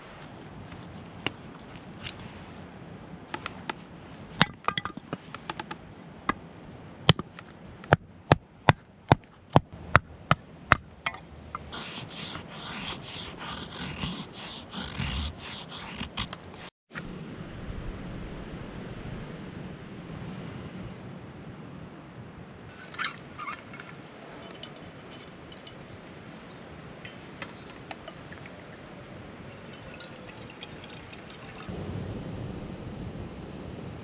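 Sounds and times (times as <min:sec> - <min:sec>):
scraping and rustling: 0:11.1 - 0:16.8.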